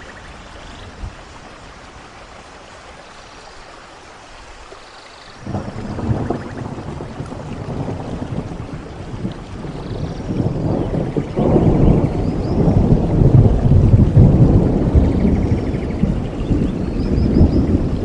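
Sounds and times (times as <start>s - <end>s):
rain falling: 0.0s - 18.0s
thunder crack and rumble: 5.4s - 18.0s.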